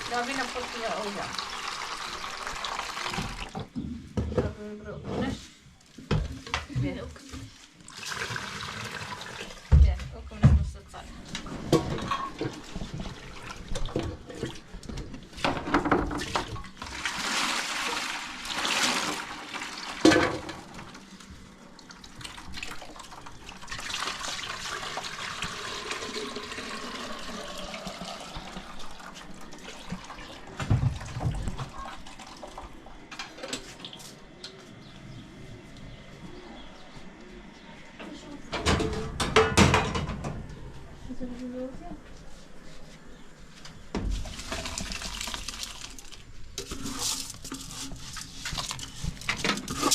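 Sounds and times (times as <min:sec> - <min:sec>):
water pouring and splashing: 0:00.0 - 0:03.7, 0:07.2 - 0:09.9, 0:11.8 - 0:32.8, 0:44.0 - 0:49.9.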